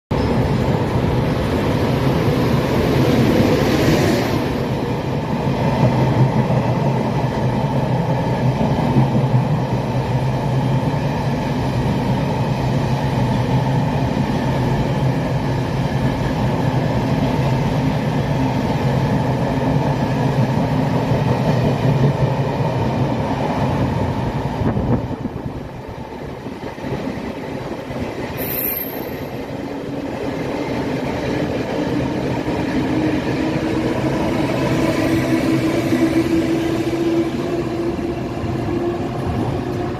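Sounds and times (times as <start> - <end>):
electric locomotive hum: 0.1 - 39.9
train coaches rumbling and clattering: 0.1 - 39.9
high squeal dropping in pitch: 28.4 - 29.5.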